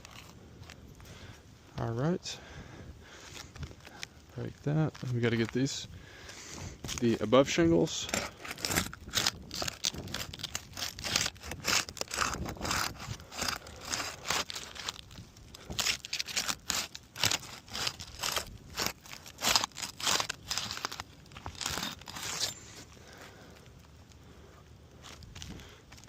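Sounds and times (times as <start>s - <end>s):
roof shingles tearing loose: 8.1s - 23.2s.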